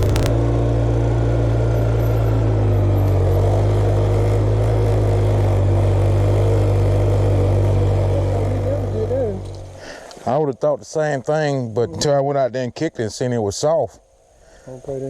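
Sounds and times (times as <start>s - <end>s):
tractor engine running: 0.0s - 0.3s.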